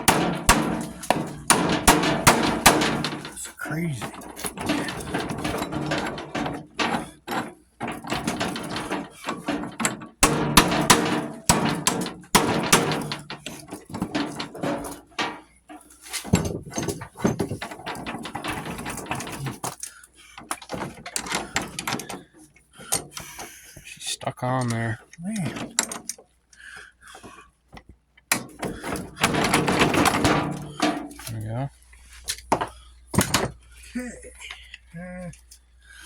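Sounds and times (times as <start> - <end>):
metal scraping: 0.0 - 19.6, 28.4 - 33.5
metal knocks and clanks of tools: 0.0 - 23.5, 24.6 - 26.3, 27.2 - 35.6.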